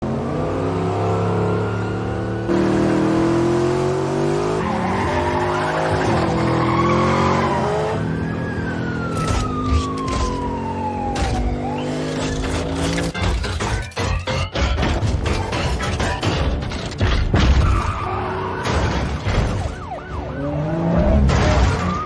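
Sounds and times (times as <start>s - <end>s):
car engine at high revs: 0.0s - 13.3s, 20.0s - 22.0s.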